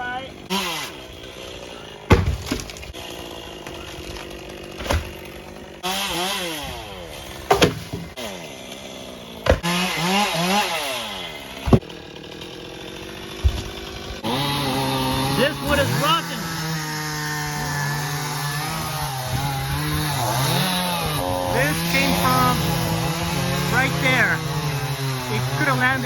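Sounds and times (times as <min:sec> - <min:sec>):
chainsaw cutting wood: 0:00.0 - 0:26.0
sharp knocks: 0:02.1 - 0:02.8, 0:07.5 - 0:08.1, 0:09.4 - 0:09.7, 0:11.6 - 0:11.9, 0:13.4 - 0:13.9.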